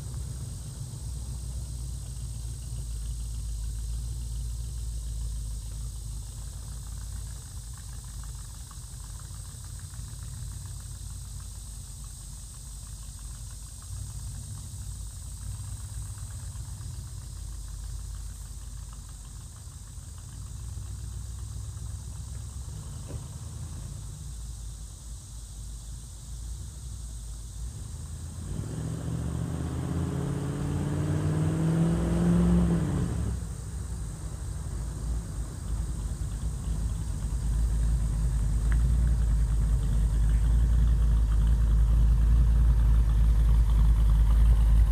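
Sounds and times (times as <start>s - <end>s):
truck engine rumbling: 0.0s - 44.9s.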